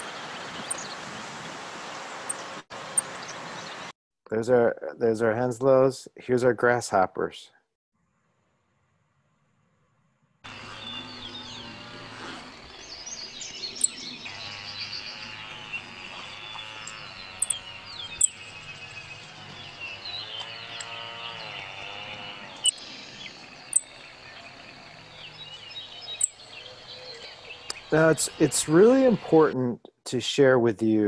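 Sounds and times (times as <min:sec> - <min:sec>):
birds singing: 0:00.0 - 0:03.9, 0:10.5 - 0:29.6
very high-pitched bird call notes: 0:10.5 - 0:29.2.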